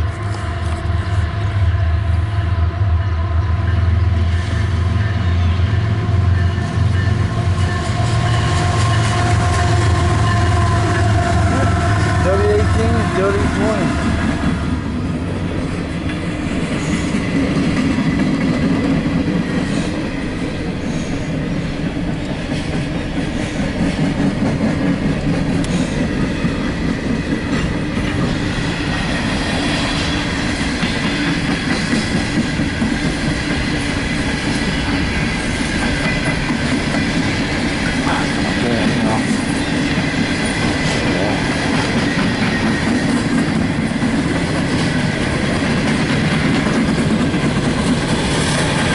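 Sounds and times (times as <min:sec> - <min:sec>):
steel wheels clattering over rails: 0:06.2 - 0:48.9.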